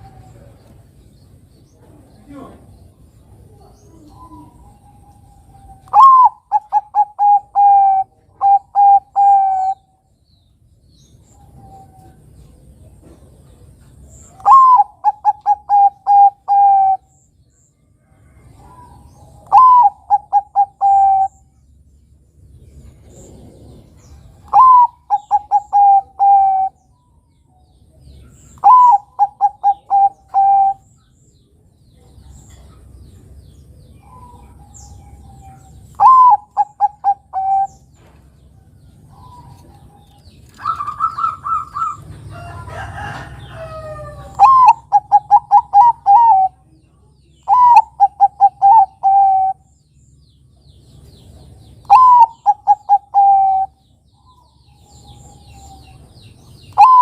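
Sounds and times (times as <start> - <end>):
dove cooing: 3.3 - 9.9, 14.3 - 17.2, 18.5 - 21.4, 23.0 - 26.8, 28.4 - 30.9, 34.0 - 38.1, 39.0 - 46.7, 47.4 - 49.7, 51.8 - 56.0, 56.7 - 57.0.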